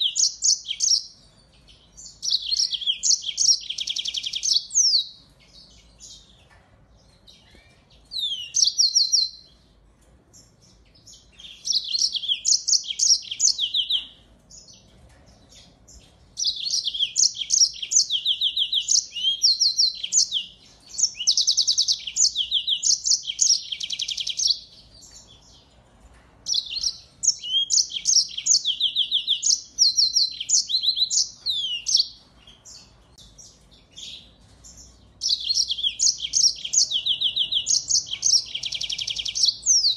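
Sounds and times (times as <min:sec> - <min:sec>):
finch singing trills: 0:00.0 - 0:09.6, 0:10.3 - 0:25.7, 0:26.5 - 0:39.9.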